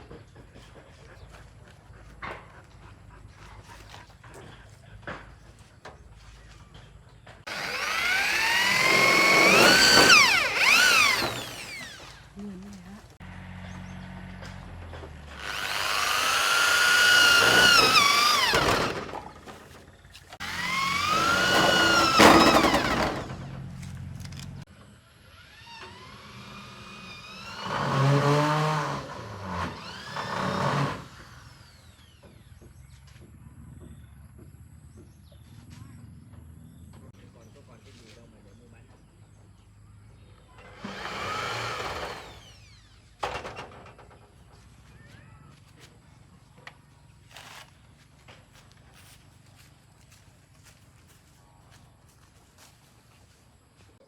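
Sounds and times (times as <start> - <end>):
power tool motor whining: 7.4 - 24.6, 25.2 - 32.6, 40.6 - 43.2.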